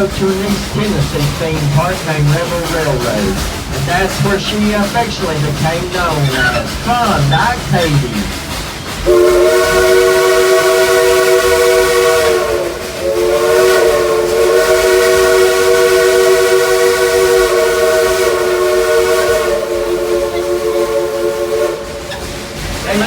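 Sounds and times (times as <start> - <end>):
steam locomotive whistle: 9.0 - 23.0.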